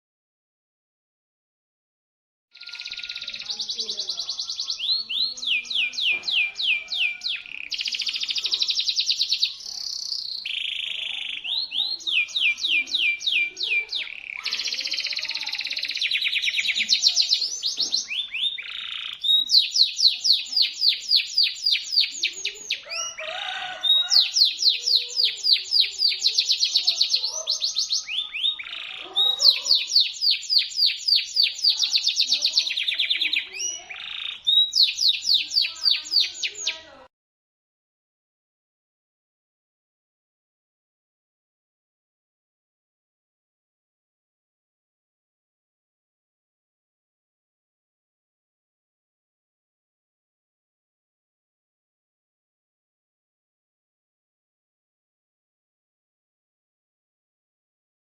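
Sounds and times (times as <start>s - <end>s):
canary singing trills: 2.6s - 37.0s.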